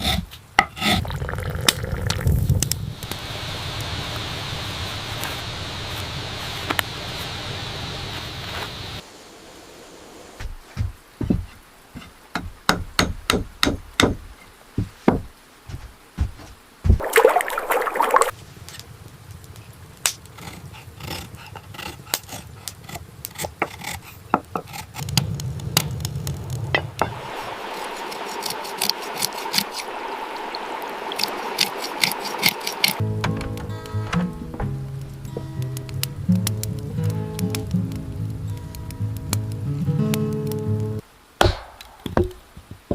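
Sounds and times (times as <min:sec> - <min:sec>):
water splashing and pouring: 0:01.0 - 0:03.2, 0:16.9 - 0:18.4, 0:27.1 - 0:33.0.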